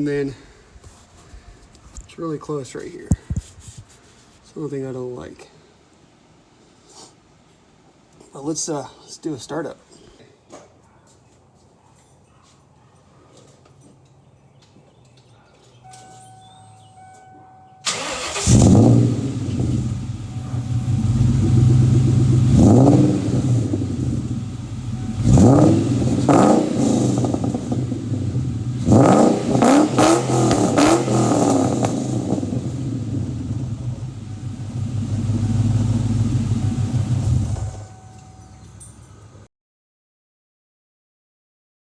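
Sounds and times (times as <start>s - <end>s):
car engine revving: 17.8s - 38.6s
car engine idling: 17.8s - 39.4s
car engine cranking and starting: 17.8s - 39.5s.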